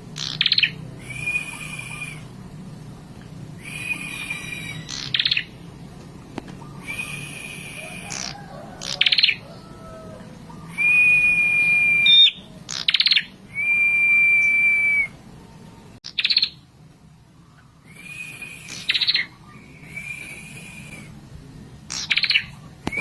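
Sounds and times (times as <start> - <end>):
bird whistling: 0.2 - 2.3, 3.6 - 5.6, 6.5 - 15.2, 16.1 - 16.6, 17.4 - 21.2, 21.9 - 23.0
bird rattling trills: 3.6 - 5.5.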